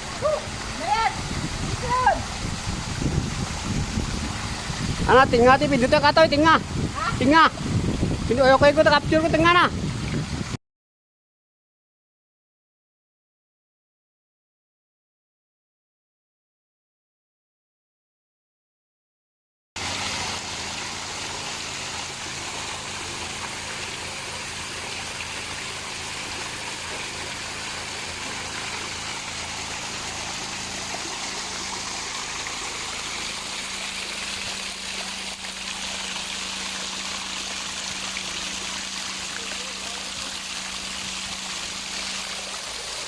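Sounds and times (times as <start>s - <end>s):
water pouring from waterfall: 0.0s - 10.6s, 19.8s - 43.0s.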